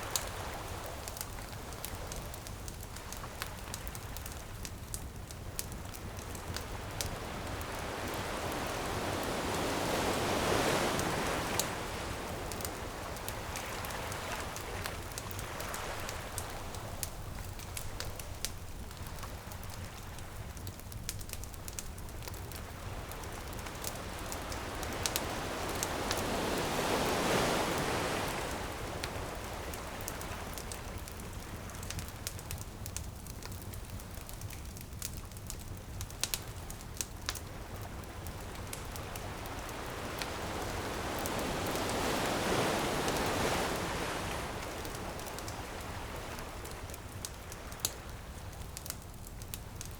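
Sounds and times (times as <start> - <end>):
campfire crackling and popping: 0.0 - 49.9
ocean waves washing in: 6.0 - 20.3, 22.6 - 31.6, 38.3 - 47.4.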